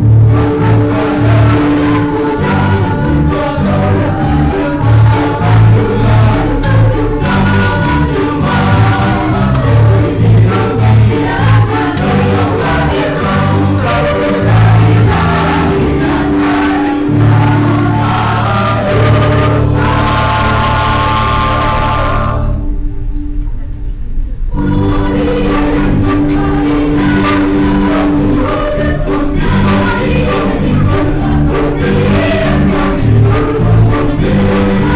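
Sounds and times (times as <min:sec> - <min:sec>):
church choir singing a hymn: 0:00.0 - 0:22.8, 0:24.5 - 0:34.9
instrumental accompaniment: 0:00.0 - 0:34.9
steady bass line: 0:00.0 - 0:34.9.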